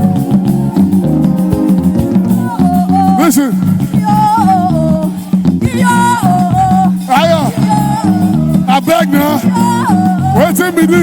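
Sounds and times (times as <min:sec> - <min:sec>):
live worship band music: 0:00.0 - 0:11.0.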